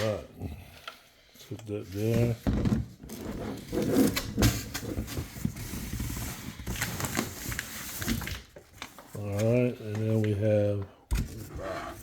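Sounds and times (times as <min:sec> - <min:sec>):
packaging rustling: 0:03.6 - 0:10.4.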